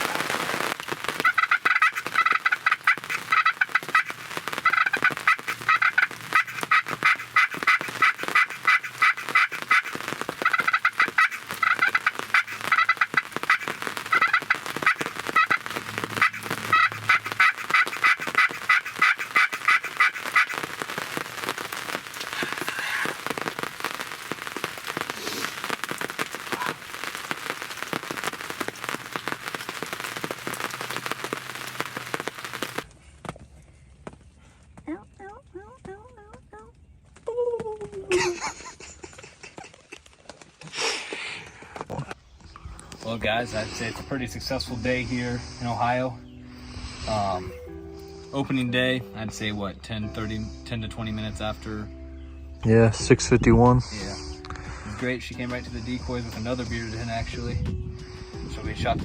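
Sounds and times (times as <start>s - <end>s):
rain pattering: 0.0s - 33.0s, 35.3s - 45.0s, 54.6s - 57.5s, 58.5s - 59.0s
turkey yelping: 1.2s - 21.3s.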